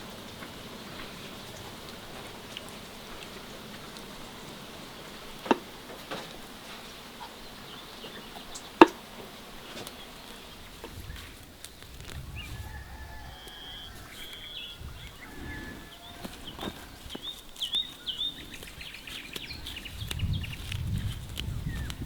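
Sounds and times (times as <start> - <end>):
small birds chirping: 0.0 - 22.0
low rumble: 11.8 - 16.8.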